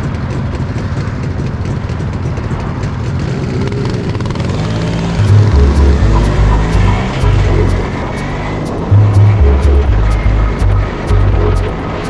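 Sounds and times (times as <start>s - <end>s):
motorcycle engine pulsing drone: 5.2s - 12.0s
music with sustained bass notes: 5.2s - 12.0s.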